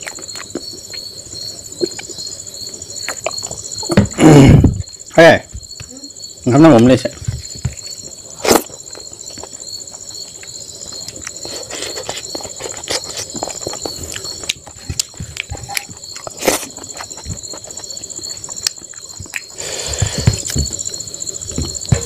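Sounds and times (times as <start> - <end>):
person chewing: 0.0 - 2.2, 3.0 - 4.0, 8.4 - 20.8
high-pitched whine: 19.9 - 22.0.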